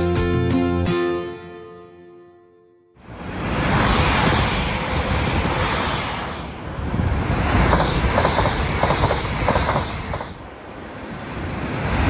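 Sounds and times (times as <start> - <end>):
wind buffeting microphone: 3.0 - 12.0
train wheels rumbling on rail: 3.2 - 10.6.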